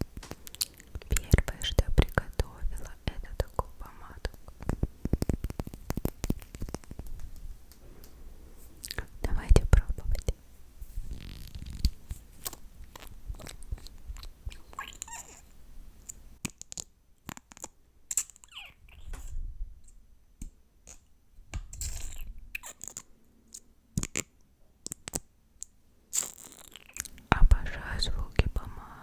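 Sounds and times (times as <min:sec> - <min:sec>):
wet mouth clicks and smacks: 0:04.3 - 0:07.4.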